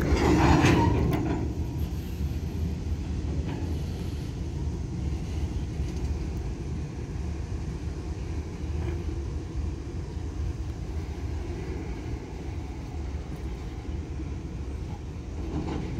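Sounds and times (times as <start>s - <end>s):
metallic clanks: 0.0s - 2.0s
train wagons rumbling: 0.0s - 15.9s.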